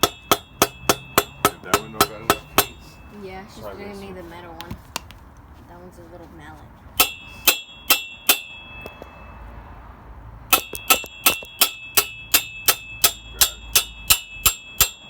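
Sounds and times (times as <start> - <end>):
hammer striking metal: 0.0 - 3.1, 7.0 - 9.5, 10.5 - 15.0.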